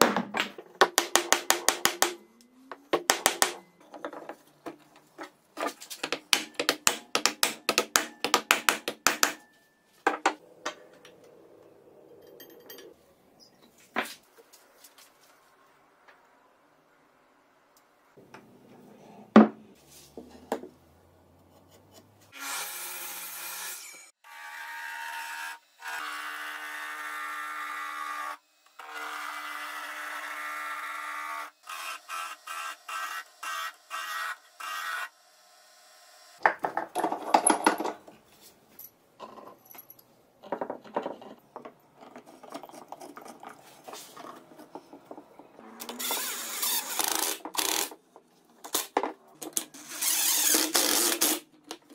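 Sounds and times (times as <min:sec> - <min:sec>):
rough scraping and rubbing: 0:42.0 - 0:47.9
tool whirring: 0:44.3 - 0:48.0, 0:49.5 - 0:51.4.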